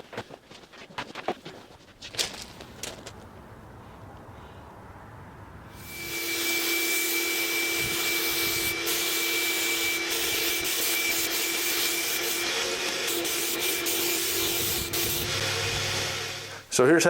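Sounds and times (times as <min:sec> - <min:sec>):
electric sander on wood: 0:05.8 - 0:16.6
sanding hiss: 0:05.8 - 0:16.6.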